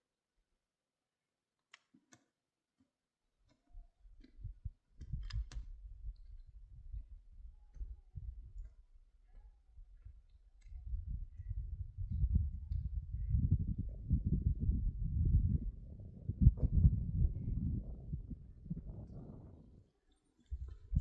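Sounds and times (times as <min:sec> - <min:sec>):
sharp clicks and knocks: 0:04.2 - 0:05.7
low rumble: 0:10.7 - 0:19.8.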